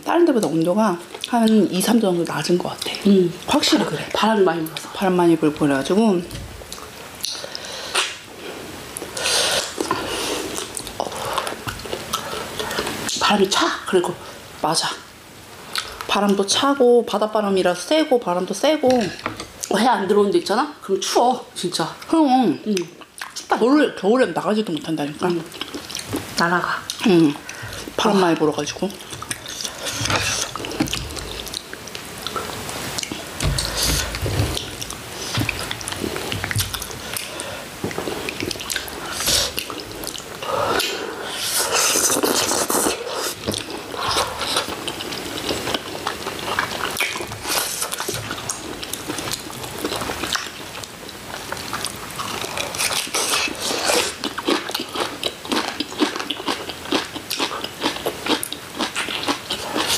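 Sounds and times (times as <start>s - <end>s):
people chewing and biting food: 28.9s - 59.9s.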